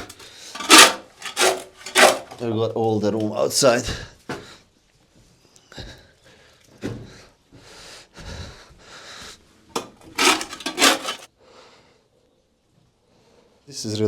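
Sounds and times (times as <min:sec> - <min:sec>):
scraping strokes on wood: 0:00.0 - 0:02.4, 0:10.2 - 0:11.3.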